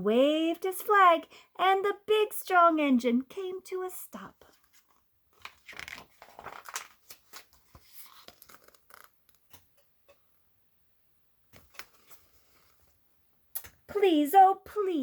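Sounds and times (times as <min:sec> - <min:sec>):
paper pages rustling: 0:04.5 - 0:09.6, 0:11.5 - 0:13.0.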